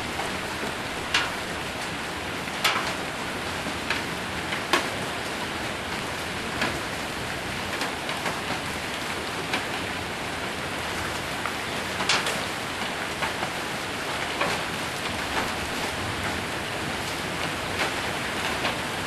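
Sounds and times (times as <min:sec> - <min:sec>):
heavy rain on a roof: 0:00.0 - 0:19.0
hailstones tapping: 0:00.1 - 0:01.4.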